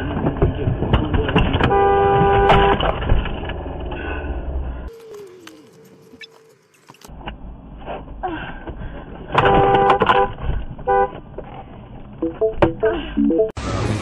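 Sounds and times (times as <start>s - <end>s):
vehicle road noise: 0.0s - 14.0s
car horn honking: 1.6s - 2.9s, 9.4s - 11.2s.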